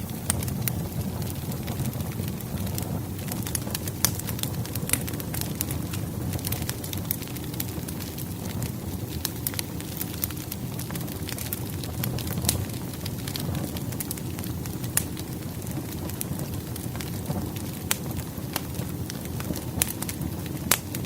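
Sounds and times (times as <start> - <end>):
logs popping and snapping: 0.0 - 2.4, 18.6 - 21.0
fire rumbling: 0.0 - 21.0.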